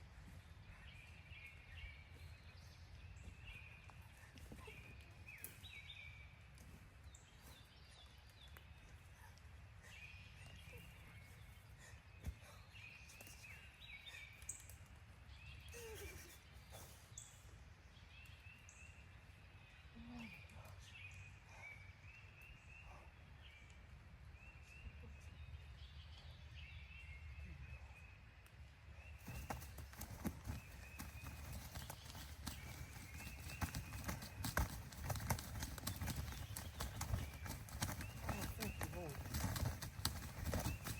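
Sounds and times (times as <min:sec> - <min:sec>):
faint bird calls: 0:15.5 - 0:17.5.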